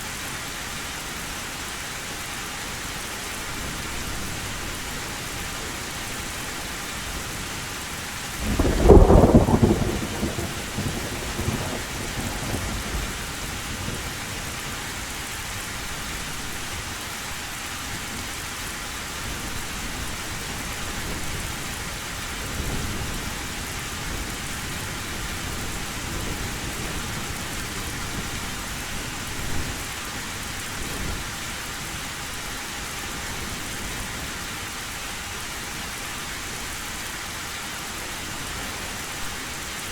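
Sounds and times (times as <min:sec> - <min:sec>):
heavy rain on a tin roof: 0:00.0 - 0:39.9
thunder: 0:08.4 - 0:14.0.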